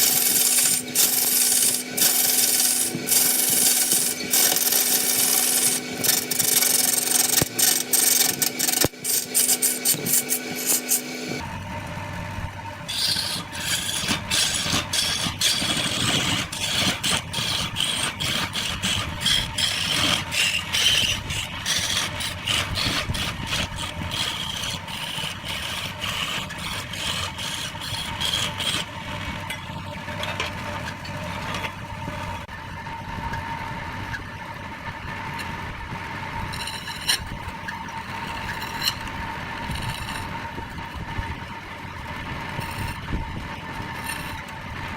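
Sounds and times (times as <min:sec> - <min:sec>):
tool scraping spinning wood: 0:00.0 - 0:11.5, 0:12.6 - 0:32.5, 0:35.2 - 0:44.9
lathe motor hum: 0:00.0 - 0:44.9
deep machine rumble: 0:11.3 - 0:44.9.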